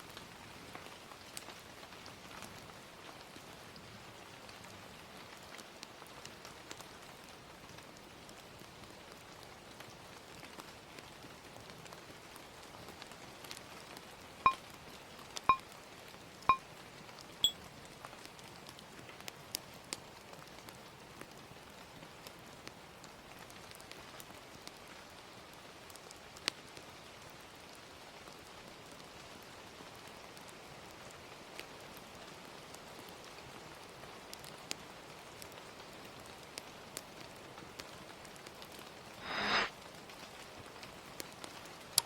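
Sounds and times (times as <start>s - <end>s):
gentle rain: 0.0s - 39.0s, 39.8s - 42.0s.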